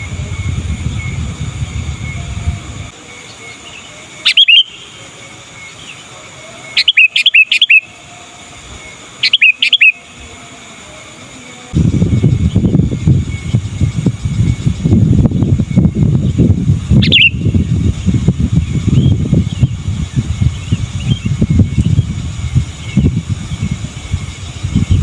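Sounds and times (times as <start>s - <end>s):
low rumble: 0.0s - 2.9s, 11.7s - 25.0s
bulbul calling: 1.9s - 10.3s, 12.1s - 25.0s.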